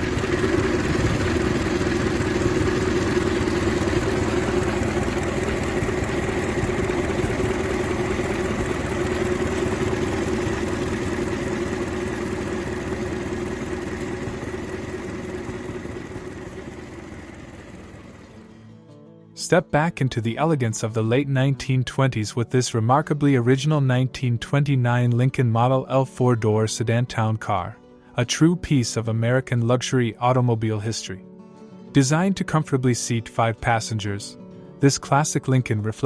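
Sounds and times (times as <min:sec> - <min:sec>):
car engine idling: 0:00.0 - 0:18.5.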